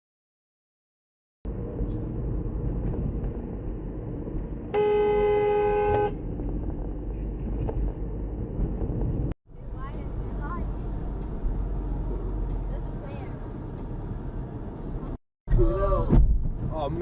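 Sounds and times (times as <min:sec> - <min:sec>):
car road and engine rumble: 0:01.5 - 0:17.0
car horn blast: 0:04.7 - 0:06.2.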